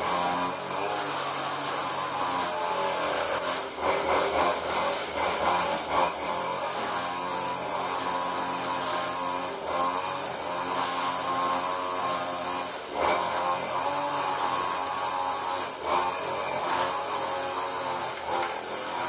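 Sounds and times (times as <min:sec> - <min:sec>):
power tool motor hissing: 0:00.0 - 0:19.0.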